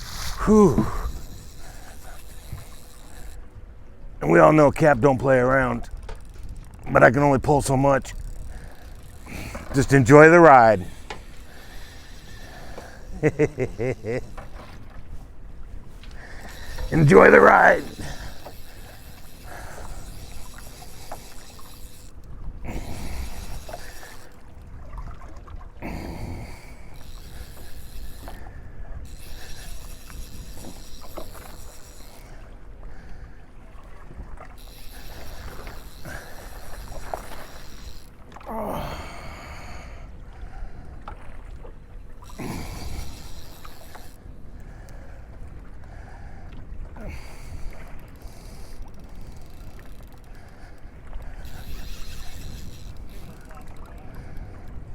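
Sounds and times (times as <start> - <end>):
rumbling wind: 0.0 - 41.7, 42.3 - 54.9
water noise: 0.0 - 54.9
faint clicks: 5.2 - 6.9, 47.6 - 54.8.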